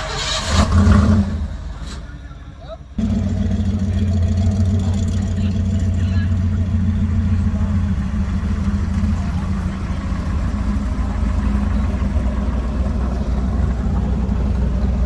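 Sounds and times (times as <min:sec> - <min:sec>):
car engine running: 0:02.2 - 0:15.0.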